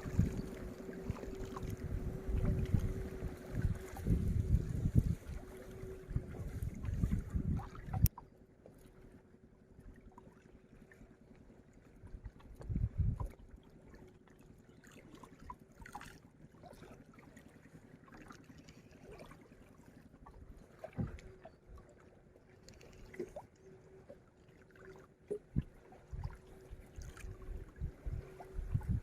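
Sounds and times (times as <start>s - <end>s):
wind buffeting microphone: 0.0s - 8.1s, 12.6s - 13.3s, 25.5s - 29.0s
faint steady hum: 0.0s - 14.0s
water lapping and splashing: 0.0s - 29.0s.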